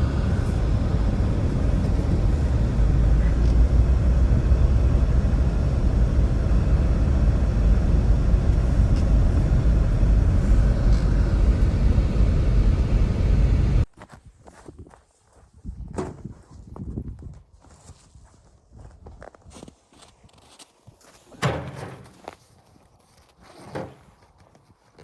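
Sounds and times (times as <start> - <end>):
blizzard wind rushing: 0.0 - 13.9.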